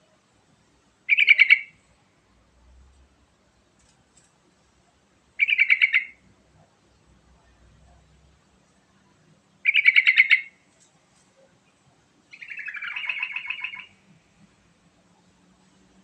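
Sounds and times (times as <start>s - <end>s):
bird singing chattering phrases: 1.1s - 1.8s, 5.4s - 6.2s, 9.6s - 10.6s, 12.3s - 14.0s.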